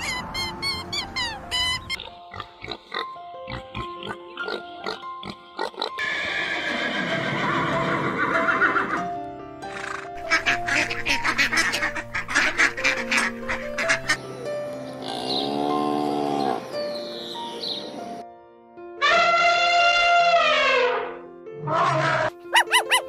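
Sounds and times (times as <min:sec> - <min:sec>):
light background music: 0:00.0 - 0:23.0
horse whinny: 0:06.0 - 0:09.0.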